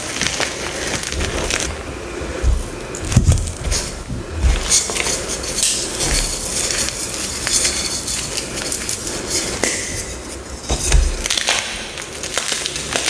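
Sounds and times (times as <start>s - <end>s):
chalk crunching and crackling: 0.0s - 13.0s
dull knocks: 1.2s - 4.9s.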